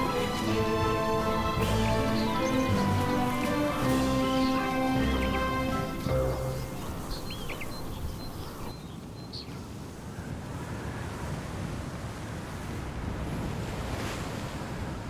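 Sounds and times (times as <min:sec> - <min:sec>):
bird chirps: 0:00.0 - 0:09.4.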